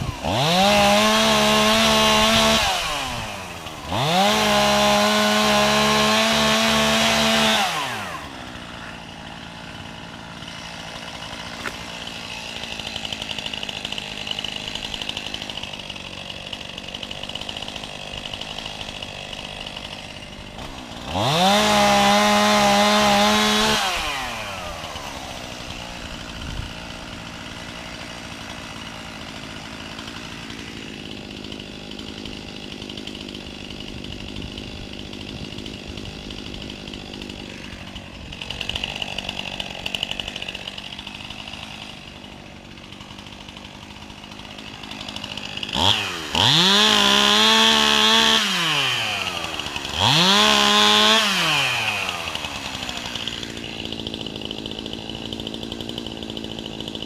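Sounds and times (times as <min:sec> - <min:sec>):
chainsaw idling and revving: 0:00.0 - 0:57.0.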